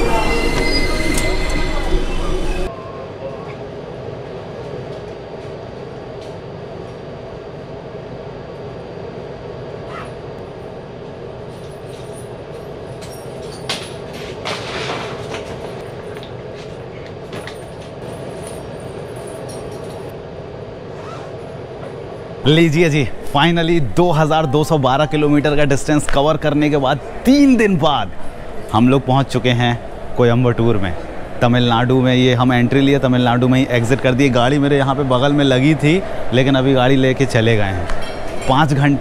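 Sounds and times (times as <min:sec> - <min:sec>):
locomotive hum: 0:00.0 - 0:39.0
train clanks: 0:11.5 - 0:20.1, 0:23.4 - 0:39.0.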